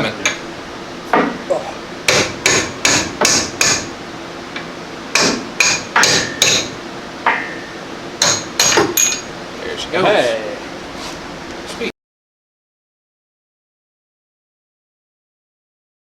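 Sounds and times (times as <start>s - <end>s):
hammer blows on metal: 2.1s - 3.9s, 5.1s - 9.4s.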